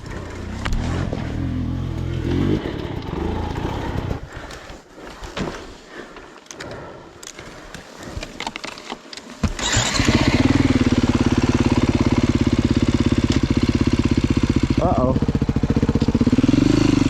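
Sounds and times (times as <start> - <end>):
motorcycle engine idling: 9.4 - 17.0.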